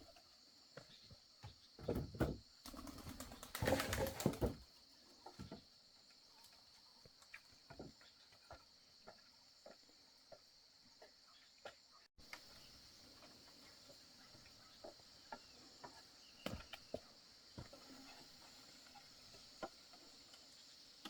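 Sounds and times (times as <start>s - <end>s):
wing flurry: 2.6s - 4.6s.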